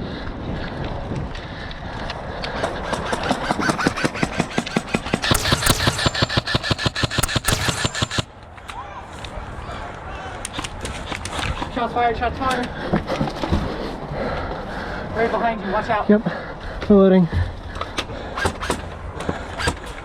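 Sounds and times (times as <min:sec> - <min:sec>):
airsoft gun firing rapidly: 0:03.0 - 0:08.3.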